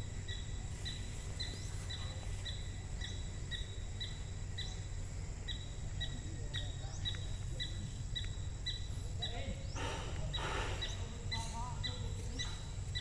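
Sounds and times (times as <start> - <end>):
low outdoor background rumble: 0.0 - 13.0.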